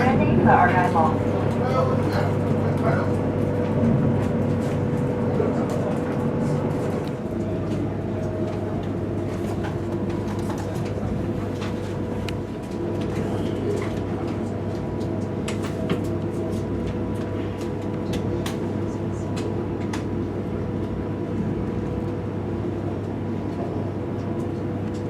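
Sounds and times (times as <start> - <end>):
train cabin running hum: 0.0 - 25.0.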